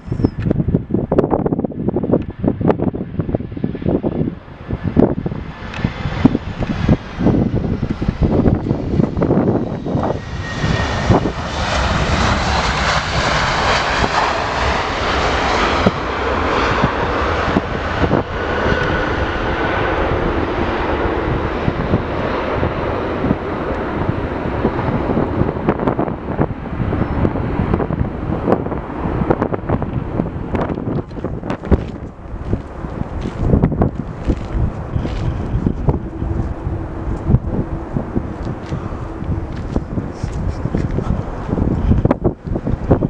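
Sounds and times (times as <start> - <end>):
jet airliner engines passing: 0.0 - 43.0
wind buffeting microphone: 0.0 - 43.0.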